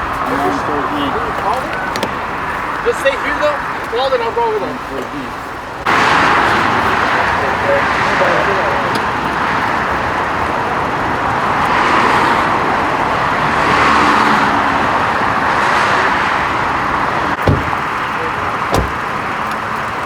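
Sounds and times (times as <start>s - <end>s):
road traffic passing: 0.0s - 20.0s
short thump: 17.4s - 18.0s, 18.7s - 19.1s.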